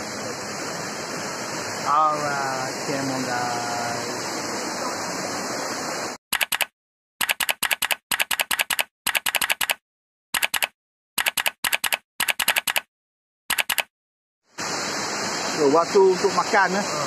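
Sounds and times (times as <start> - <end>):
river water rushing: 0.0 - 6.2, 14.6 - 17.0
typewriter key clicks: 6.4 - 9.8, 10.4 - 12.9, 13.5 - 13.9.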